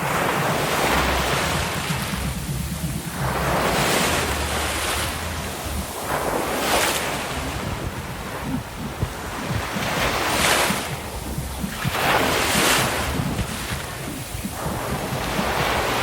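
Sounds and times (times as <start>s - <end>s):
ocean surf washing ashore: 0.0s - 16.0s
wind buffeting microphone: 0.0s - 16.0s.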